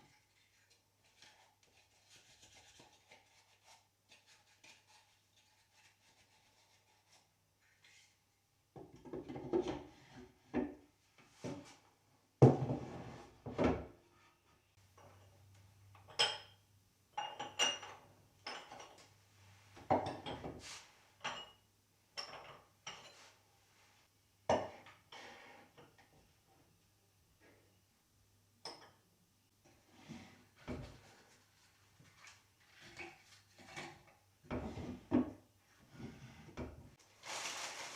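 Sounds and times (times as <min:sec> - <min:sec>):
dishes clinking: 0:16.0 - 0:19.1, 0:21.2 - 0:21.6, 0:22.2 - 0:23.3.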